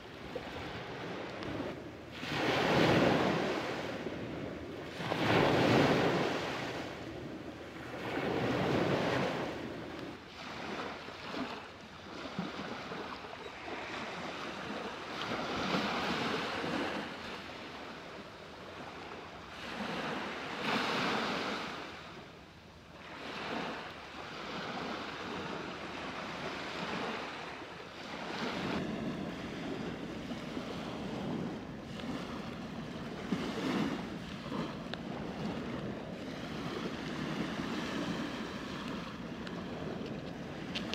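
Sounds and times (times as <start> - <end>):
waves breaking on beach: 0.0 - 40.9
wind buffeting microphone: 28.2 - 40.9.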